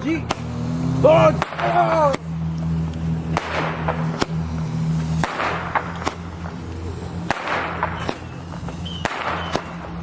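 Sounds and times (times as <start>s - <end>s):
steady low hum: 0.0s - 10.0s
firework crackling hiss: 0.1s - 10.0s
firework pops: 2.9s - 4.4s, 5.0s - 6.6s, 7.2s - 10.0s.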